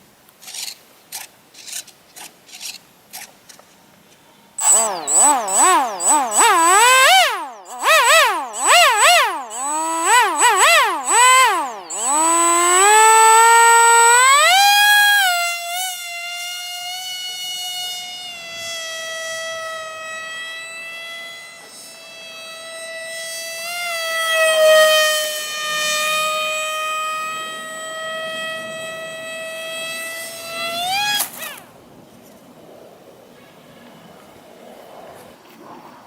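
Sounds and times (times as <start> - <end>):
electric motor and propeller whine: 4.6 - 32.6.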